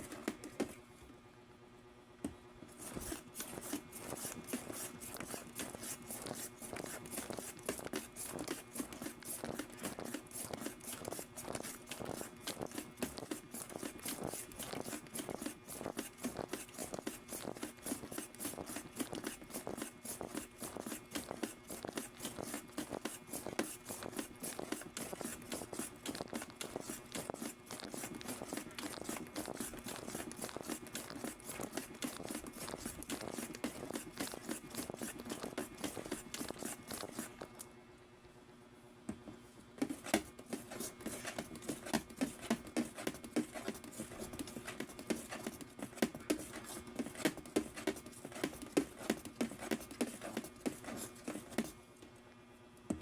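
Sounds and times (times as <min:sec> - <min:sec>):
quick scraping and crunching strokes: 0:02.7 - 0:37.6.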